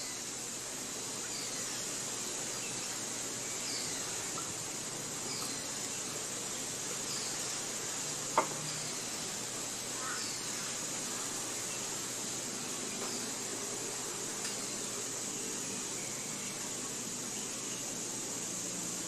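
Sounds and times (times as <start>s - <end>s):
high insect-like hiss: 0.0s - 19.0s
bird chirping: 1.2s - 4.6s.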